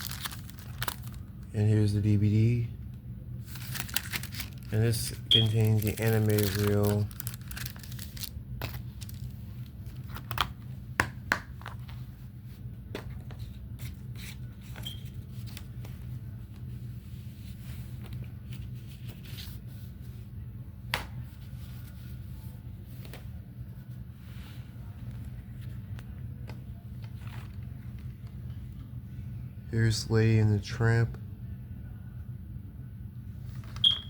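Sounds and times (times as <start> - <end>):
plastic cases rustling: 0.0 - 1.2, 3.5 - 9.3
steady low hum: 0.0 - 34.0.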